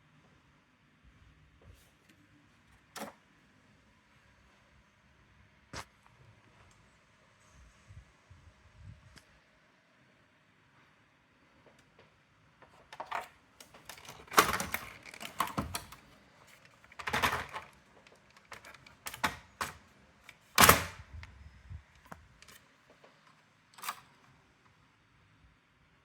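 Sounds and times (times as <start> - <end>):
typewriter parts clattering: 12.7 - 21.0, 23.8 - 24.2.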